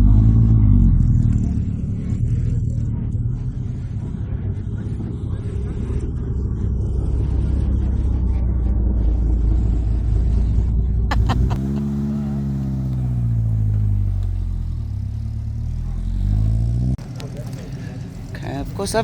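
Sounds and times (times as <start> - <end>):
car engine revving: 11.1 - 17.0.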